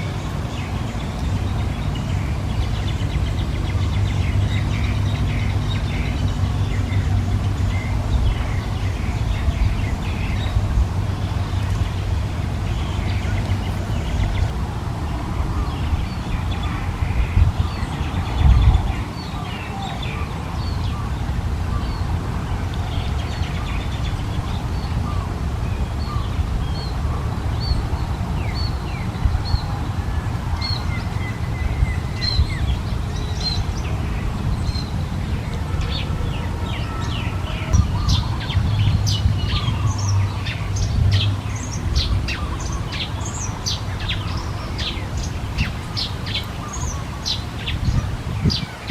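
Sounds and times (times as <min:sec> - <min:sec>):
steady low rumble: 0:00.0 - 0:48.9
small birds chirping: 0:30.5 - 0:48.9.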